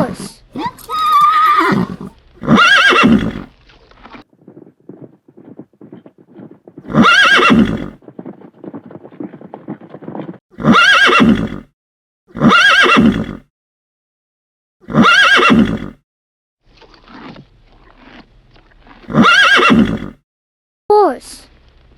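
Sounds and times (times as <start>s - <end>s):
horse whinnying: 0.0s - 11.7s, 12.3s - 13.5s, 14.8s - 16.0s, 19.0s - 20.2s
hooves clip-clopping: 0.1s - 11.5s.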